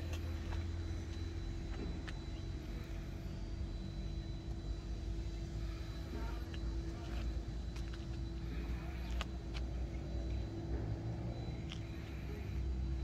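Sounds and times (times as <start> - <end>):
engine idling with low hum: 0.0 - 13.0.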